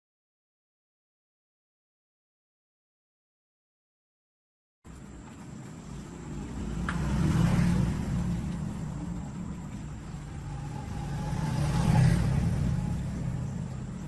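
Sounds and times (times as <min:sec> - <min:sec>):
engine rumbling: 0:04.9 - 0:14.0.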